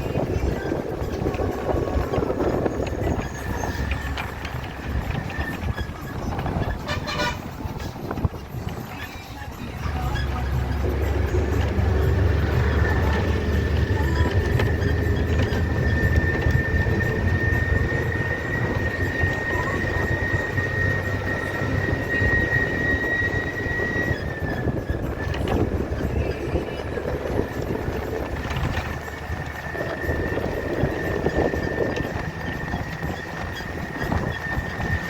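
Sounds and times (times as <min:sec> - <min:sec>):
vehicle engine rumble: 0:00.0 - 0:35.0.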